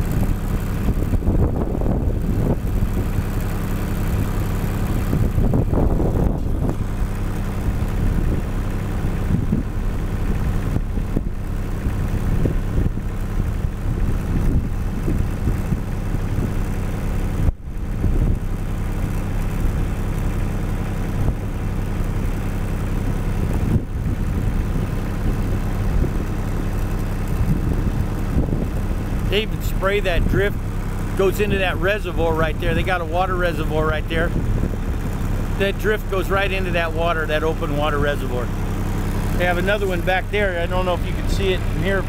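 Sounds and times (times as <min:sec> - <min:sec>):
wind gusting on microphone: 0:00.0 - 0:16.7, 0:17.3 - 0:18.6, 0:23.3 - 0:35.7
vehicle engine idling: 0:00.0 - 0:42.0.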